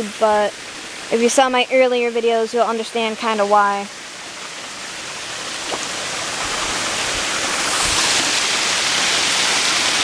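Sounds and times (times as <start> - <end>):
waterfall rushing: 3.9 - 10.0.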